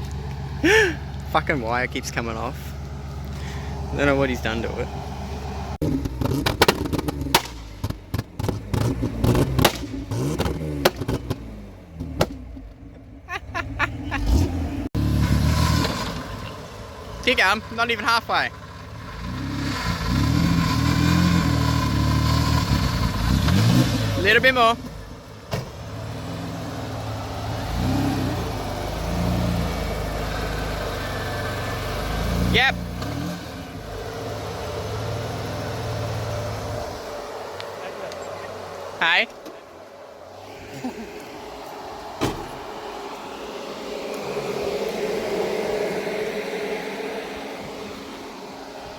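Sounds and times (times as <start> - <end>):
vehicle engine revving: 0.0 - 48.9
sharp clunks and knocks: 6.0 - 12.8, 42.2 - 42.6.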